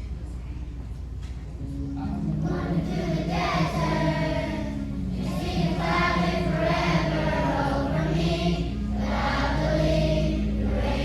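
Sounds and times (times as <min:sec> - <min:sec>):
children's choir singing: 0:02.3 - 0:11.0.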